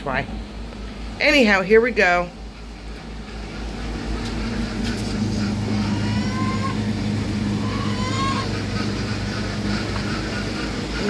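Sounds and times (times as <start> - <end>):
log splitter engine humming: 0.0 - 11.0
poultry squawking: 2.7 - 11.0.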